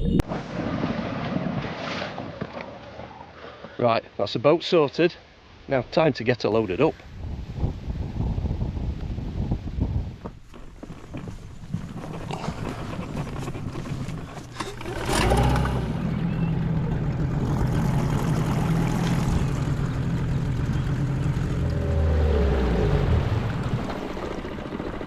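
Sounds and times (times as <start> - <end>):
outboard engine running: 10.6 - 25.0.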